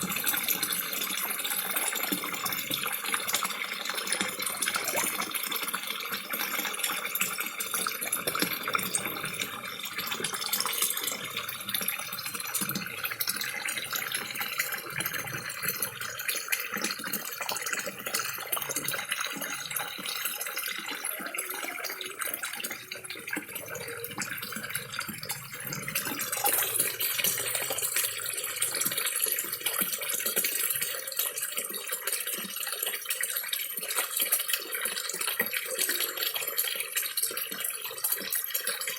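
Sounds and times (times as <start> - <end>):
waterfall splashing into pond: 0.0 - 38.9
fish slurping at surface: 4.0 - 5.8, 20.8 - 29.6.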